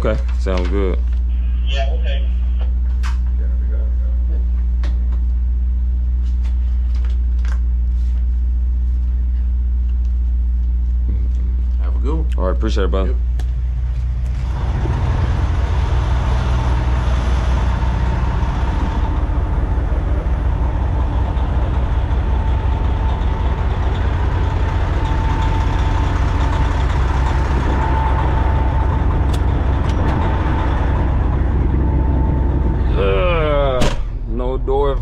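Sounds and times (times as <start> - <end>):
truck diesel engine running: 9.0 - 35.0.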